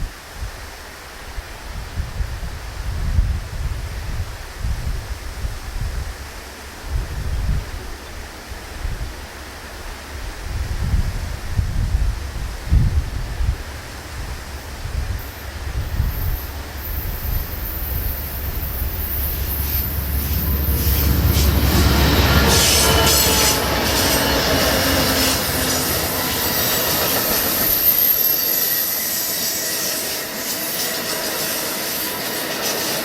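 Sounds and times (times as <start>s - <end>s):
wind buffeting microphone: 1.3s - 28.4s
passenger train passing: 7.7s - 33.0s
train wheels squealing and clicking: 15.2s - 33.0s.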